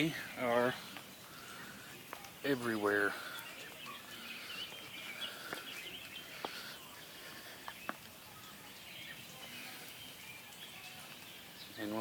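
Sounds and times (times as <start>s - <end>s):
birds chirping and singing: 0.0s - 12.0s.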